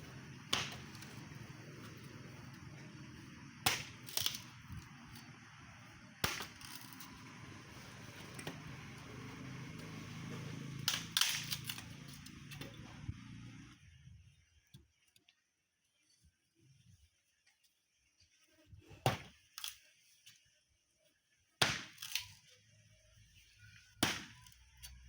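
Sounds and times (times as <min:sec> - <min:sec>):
low steady hum: 0:00.0 - 0:14.6.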